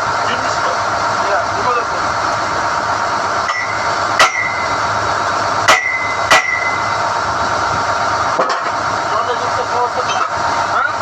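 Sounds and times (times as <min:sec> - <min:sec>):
drill rig running: 0:00.0 - 0:11.0
metal rods clanking: 0:03.5 - 0:04.8, 0:05.7 - 0:07.1.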